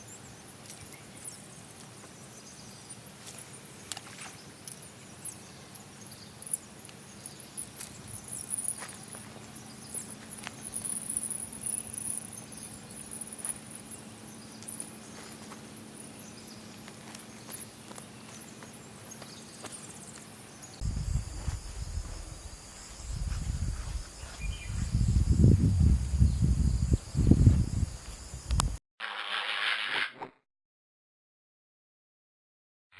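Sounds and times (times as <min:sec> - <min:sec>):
insects trilling: 0:00.0 - 0:28.8
wind buffeting microphone: 0:20.8 - 0:28.8.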